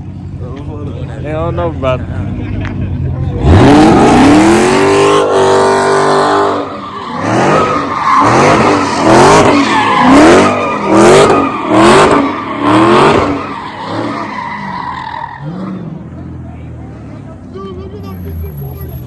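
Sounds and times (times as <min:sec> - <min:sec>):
car engine revving: 0:01.2 - 0:19.0
tyre squeal: 0:06.6 - 0:15.9.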